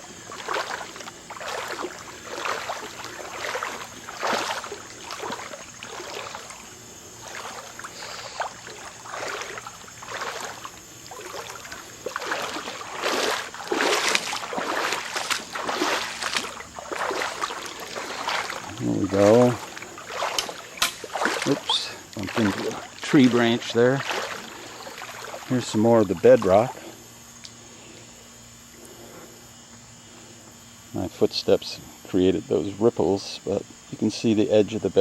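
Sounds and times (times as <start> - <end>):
footsteps sloshing through water: 0.0 - 27.6.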